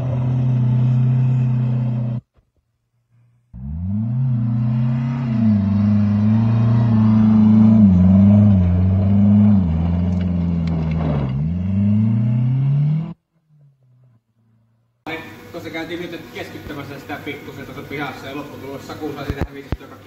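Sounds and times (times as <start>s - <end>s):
car engine revving hard: 3.6s - 13.2s.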